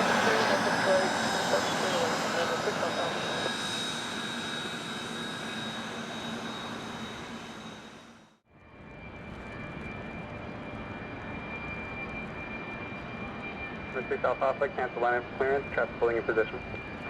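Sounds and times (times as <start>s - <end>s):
jet engine low whine: 0.0s - 17.0s
jet engines roaring with high whine: 0.0s - 17.0s.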